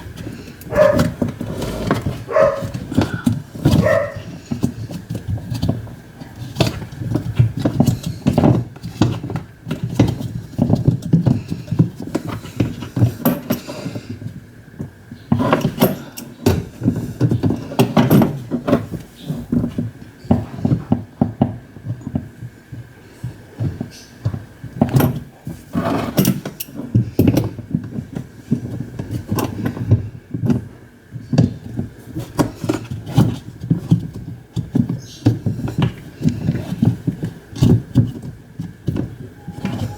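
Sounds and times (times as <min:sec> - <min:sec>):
knocking and clattering on metal parts: 0:00.0 - 0:39.9
faint steady high tone: 0:39.4 - 0:39.9.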